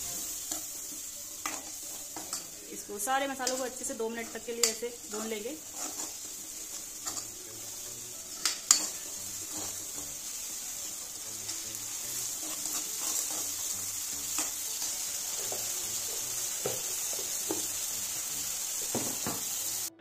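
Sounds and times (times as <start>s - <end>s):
masala sizzling in oil: 0.0s - 20.0s
spoon scraping through food: 4.2s - 7.6s, 8.2s - 16.3s
spoon knocking against pan: 16.6s - 17.7s, 18.9s - 19.5s.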